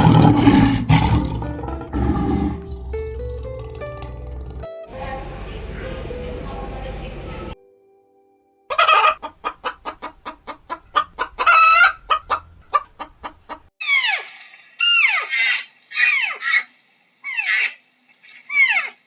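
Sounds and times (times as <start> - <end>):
hen clucking: 8.7 - 19.0.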